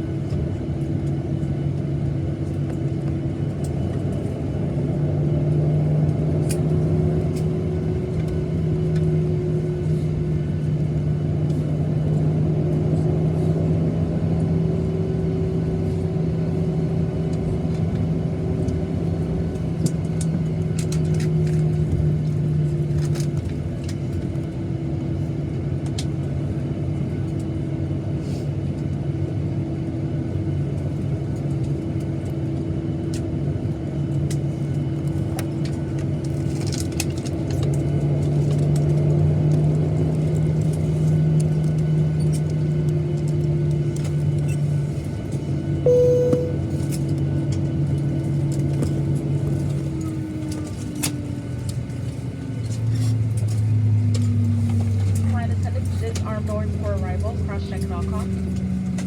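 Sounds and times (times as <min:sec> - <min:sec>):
jet engine cabin rumble: 0:00.0 - 0:53.0, 0:53.6 - 0:59.0
short clear tone: 0:45.9 - 0:46.9.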